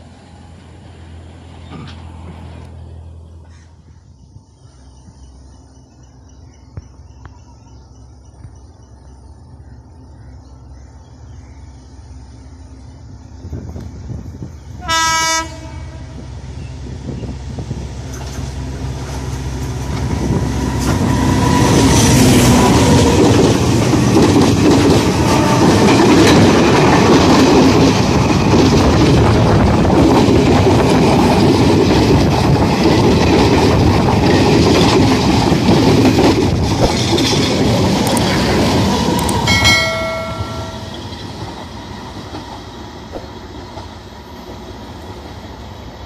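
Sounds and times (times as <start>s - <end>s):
train rumble and rail clatter: 0.0s - 46.0s
train horn blast: 14.8s - 16.4s, 25.1s - 26.0s.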